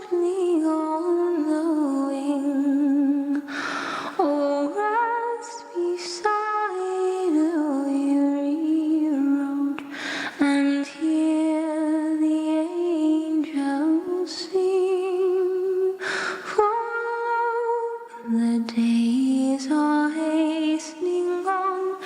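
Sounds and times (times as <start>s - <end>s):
singer breathing: 3.4s - 4.2s, 9.8s - 10.4s, 16.0s - 16.5s.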